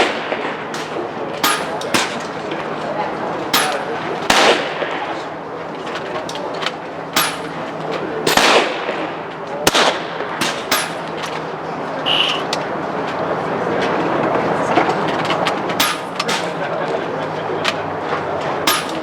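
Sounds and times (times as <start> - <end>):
low background murmur: 0.0 - 19.0
air rifle shots: 8.3 - 9.0
short high tone: 12.0 - 12.5.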